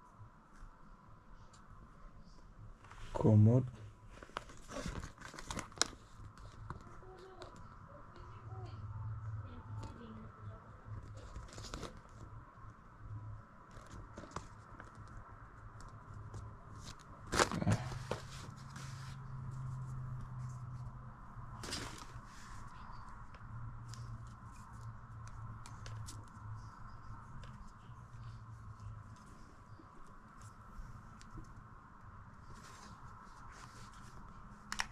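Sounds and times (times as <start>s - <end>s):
faint steady hum: 0.0s - 34.9s
scrape or rustle: 17.7s - 20.8s, 32.5s - 34.2s.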